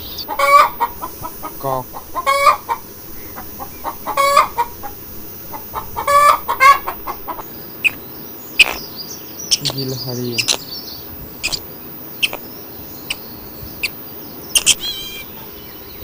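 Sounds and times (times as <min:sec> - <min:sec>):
chicken clucking: 0:00.0 - 0:08.0, 0:08.6 - 0:08.9, 0:09.5 - 0:10.6, 0:11.4 - 0:11.6, 0:12.2 - 0:12.5, 0:14.6 - 0:15.5
chicken drawn-out calls: 0:00.0 - 0:08.9, 0:10.4 - 0:13.2, 0:14.6 - 0:15.6
sharp click: 0:10.4 - 0:10.6, 0:14.6 - 0:14.8.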